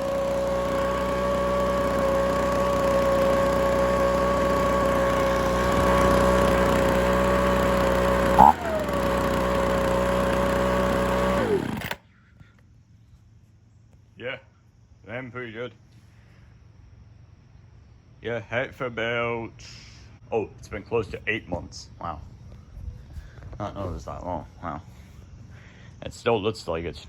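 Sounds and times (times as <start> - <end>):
leaf blower engine running: 0.0 - 12.1.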